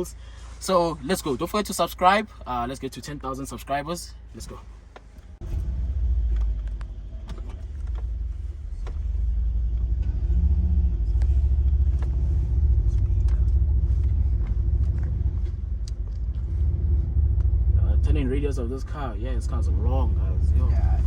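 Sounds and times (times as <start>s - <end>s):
car exhaust rumble pulling away: 5.4s - 21.0s.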